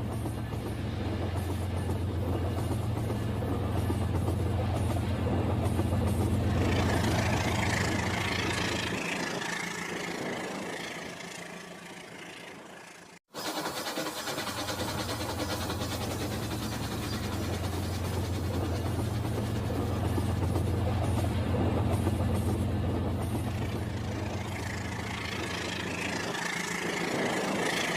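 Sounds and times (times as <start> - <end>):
toy train motor hum: 6.8 - 19.4, 24.2 - 27.9.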